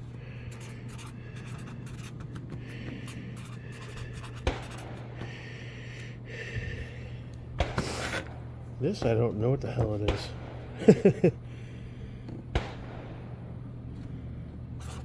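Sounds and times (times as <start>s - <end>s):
steady low hum: 0.0s - 15.0s
pen scratching on paper: 0.5s - 5.0s, 14.8s - 15.0s.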